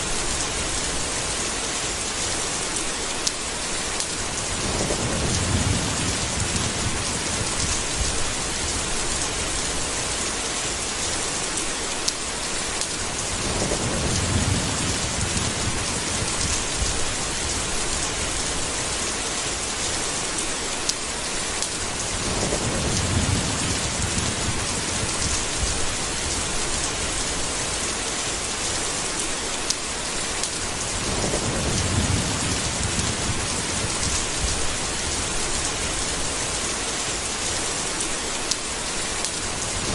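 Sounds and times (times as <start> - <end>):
steady rain hissing: 0.0 - 39.9
low thunder rolling: 4.4 - 9.9, 13.2 - 18.9, 22.0 - 27.5, 30.7 - 36.3.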